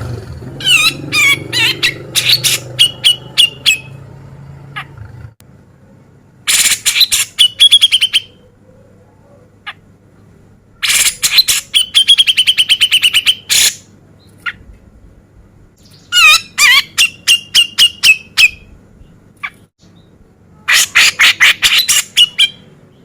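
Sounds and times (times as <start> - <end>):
bird sharp chattering calls: 0.6 - 4.0, 6.5 - 8.5, 10.8 - 14.7, 15.8 - 18.7, 19.4 - 23.0.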